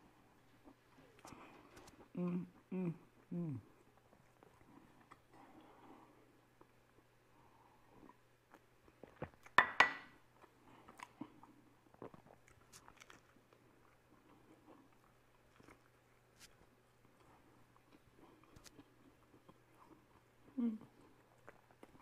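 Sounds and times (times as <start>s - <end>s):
ceramic mug knocking on countertop: 9.6s - 10.1s
biting and chewing sandwich: 10.3s - 22.0s.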